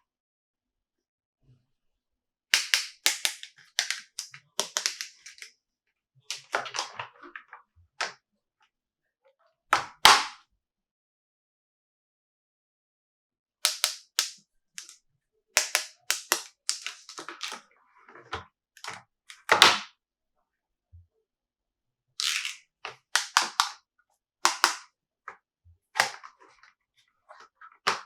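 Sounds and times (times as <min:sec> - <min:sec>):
toy car taps and clicks: 0:02.6 - 0:05.5, 0:13.7 - 0:15.0, 0:15.6 - 0:17.6, 0:23.2 - 0:23.8, 0:24.5 - 0:24.9.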